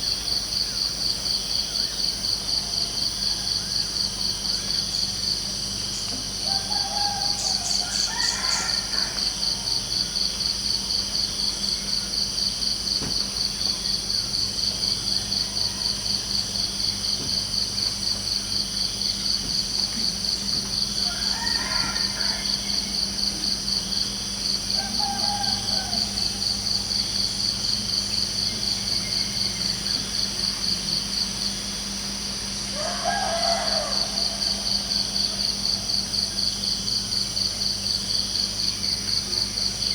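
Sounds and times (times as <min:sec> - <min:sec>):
crickets chirping: 0:00.0 - 0:39.9
faint rooster crowing: 0:06.4 - 0:10.1, 0:15.1 - 0:16.7, 0:20.8 - 0:24.0, 0:24.6 - 0:27.8, 0:32.6 - 0:36.6.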